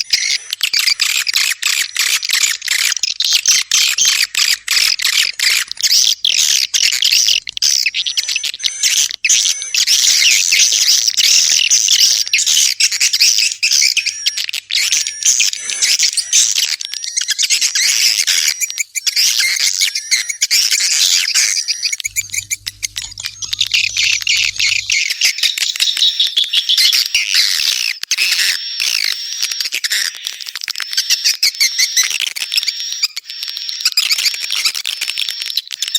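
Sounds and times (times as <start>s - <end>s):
swiftlets twittering: 2.0s - 25.0s.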